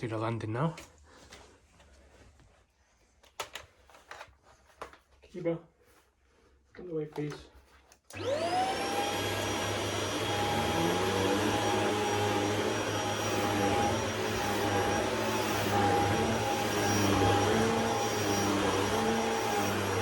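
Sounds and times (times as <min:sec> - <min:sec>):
stick vacuum running on carpet: 0:08.2 - 0:20.0.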